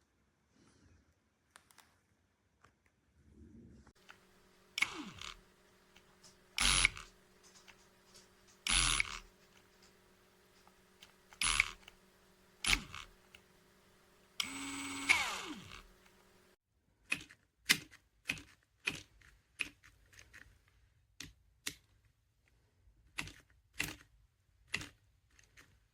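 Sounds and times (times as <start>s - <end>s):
drill clicks and knocks: 4.0s - 16.5s
drill motor whirring: 4.0s - 16.6s.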